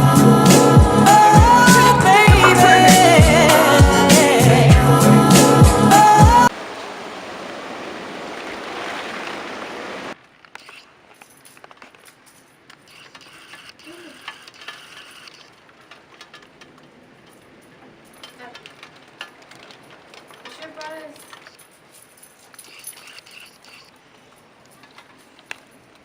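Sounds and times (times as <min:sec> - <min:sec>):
heavy rain hiss: 0:00.0 - 0:10.2
faint clicks and rattles: 0:10.2 - 0:26.0.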